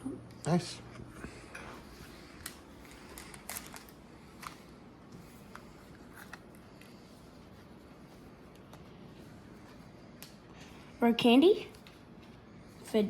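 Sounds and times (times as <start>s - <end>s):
foil pack crackling: 2.4s - 4.6s.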